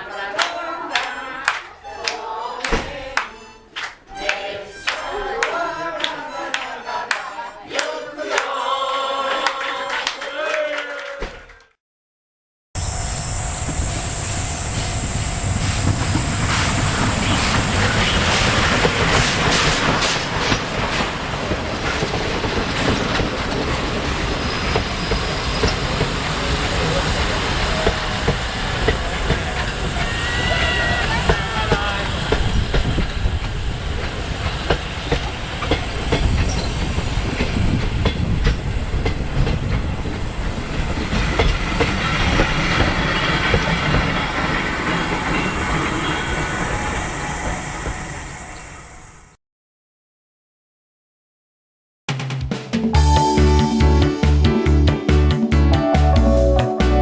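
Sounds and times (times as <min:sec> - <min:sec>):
railway carriage rumbling: 0:12.8 - 0:49.3
wheels clacking over rail joints: 0:15.8 - 0:46.8
high squeal: 0:29.5 - 0:32.3, 0:44.1 - 0:49.3.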